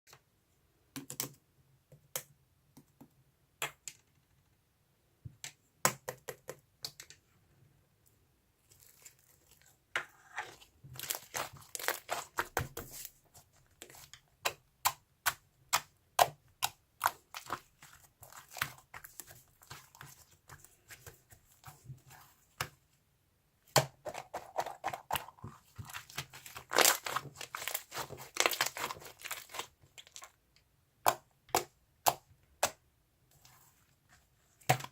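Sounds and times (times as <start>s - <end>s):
crinkling and tearing: 11.0s - 12.4s, 25.8s - 30.3s.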